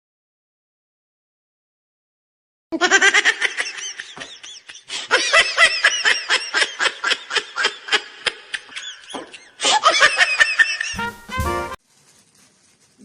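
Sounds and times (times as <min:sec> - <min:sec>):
high-pitched laughter: 0:02.8 - 0:11.0.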